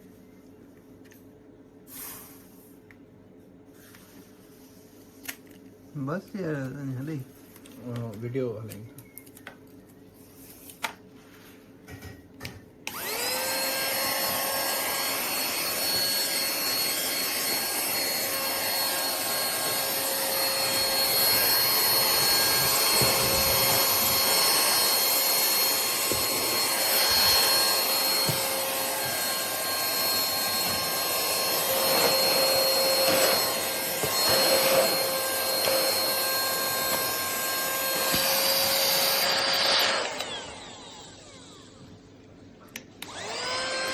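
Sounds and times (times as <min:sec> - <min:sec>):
handheld vacuum cleaner whining: 0:12.9 - 0:42.0, 0:43.0 - 0:43.9.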